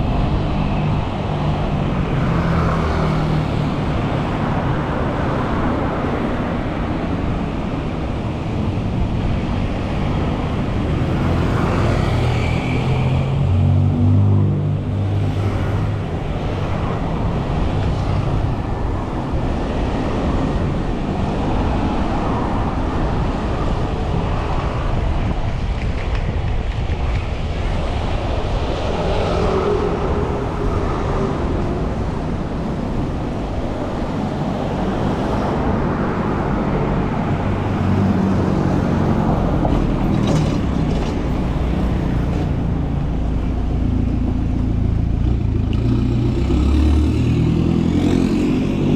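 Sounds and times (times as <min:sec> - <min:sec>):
street traffic din: 0:00.0 - 0:48.9.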